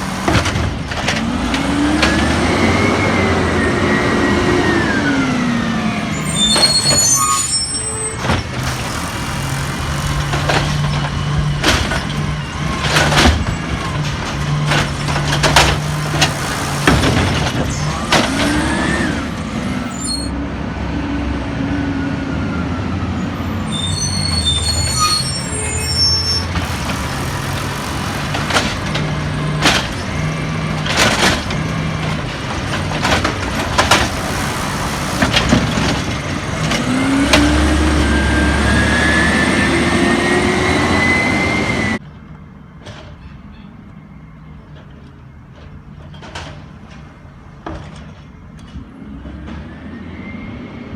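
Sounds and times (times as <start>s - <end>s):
short high squeals: 0.0s - 0.6s, 6.1s - 11.5s, 14.7s - 20.4s, 23.5s - 30.3s, 33.0s - 35.8s
sharp clanks and bangs: 0.0s - 2.2s, 8.2s - 18.6s, 26.5s - 36.2s
garbage truck engine running: 0.0s - 20.3s, 23.2s - 38.7s.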